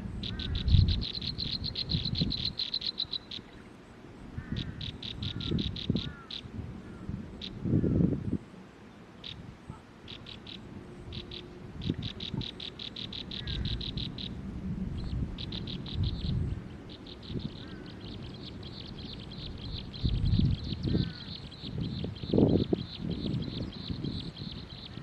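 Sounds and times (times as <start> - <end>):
low rumbling background noise: 0.0 - 25.0
bird calling in rapid high notes: 10.1 - 14.4.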